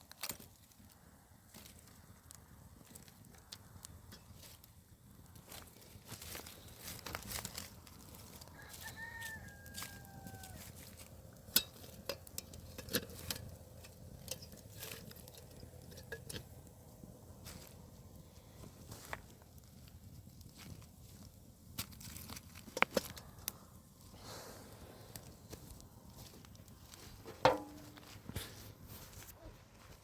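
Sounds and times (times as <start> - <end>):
rooster crowing: 8.3 - 11.0.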